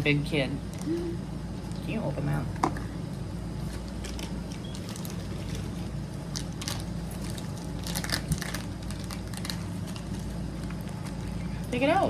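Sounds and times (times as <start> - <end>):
low background hum: 0.0 - 12.0
plastic packaging crinkling and tearing: 3.6 - 11.4.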